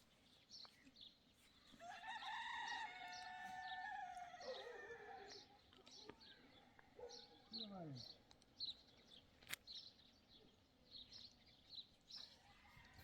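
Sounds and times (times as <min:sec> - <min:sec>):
small birds chirping faintly: 0:00.0 - 0:13.0
rooster crowing: 0:01.8 - 0:05.4.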